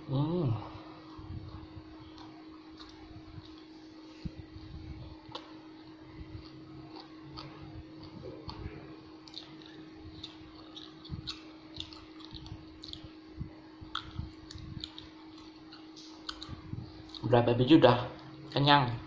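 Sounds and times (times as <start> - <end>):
faint steady hum: 0.0 - 19.0
person chewing with mouth clicks: 1.1 - 4.4, 5.2 - 5.6, 6.3 - 17.4.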